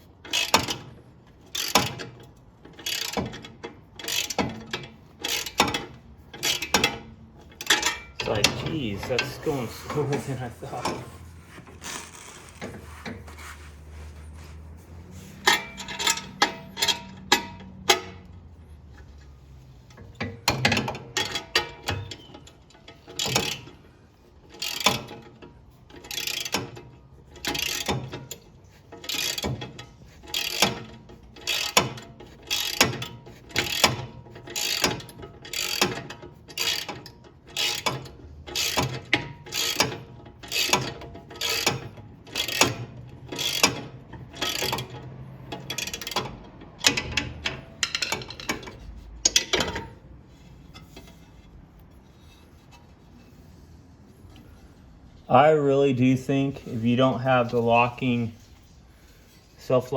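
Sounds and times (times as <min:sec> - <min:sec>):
ratchet wrench clicking: 0:01.4 - 0:07.0, 0:27.4 - 0:28.0, 0:29.0 - 0:36.9, 0:37.6 - 0:49.8.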